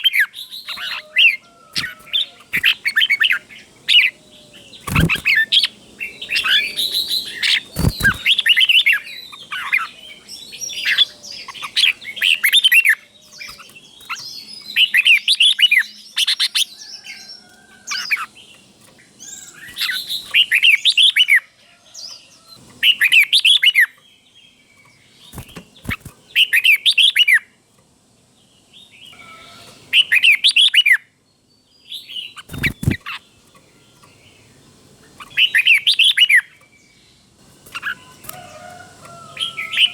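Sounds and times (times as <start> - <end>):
bird singing warbling song: 0.0 - 39.9.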